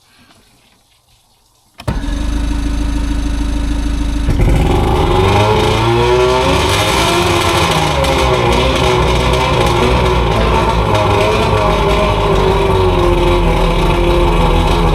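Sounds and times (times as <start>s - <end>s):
outboard motor running: 1.9s - 14.9s.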